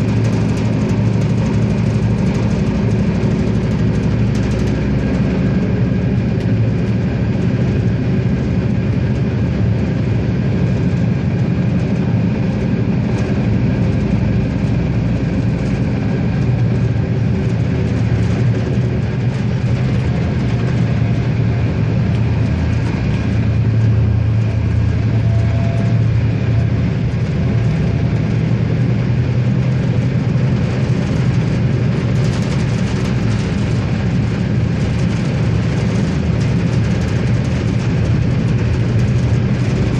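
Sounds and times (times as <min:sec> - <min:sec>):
diesel railcar engine drone: 0:00.0 - 0:39.9
wheel and rail noise: 0:00.0 - 0:39.9.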